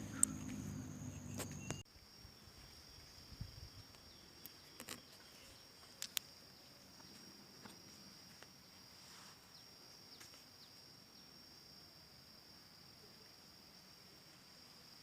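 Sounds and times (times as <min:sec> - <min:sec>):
sharp clicks: 0:00.0 - 0:01.8
high-pitched insect trill: 0:00.0 - 0:15.0.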